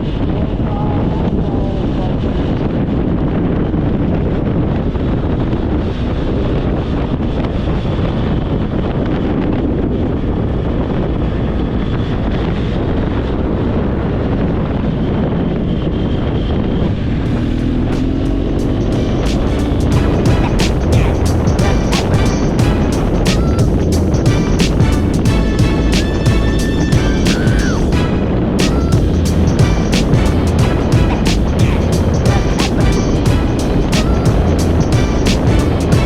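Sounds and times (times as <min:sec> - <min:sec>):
wind rush on microphone: 0:00.0 - 0:36.0
motorcycle engine: 0:16.9 - 0:36.0.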